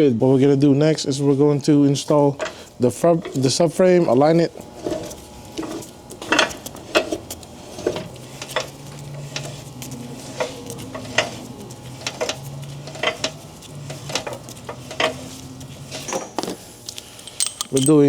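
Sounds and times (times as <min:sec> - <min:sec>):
steel bolts clinking: 0:17.2 - 0:18.0.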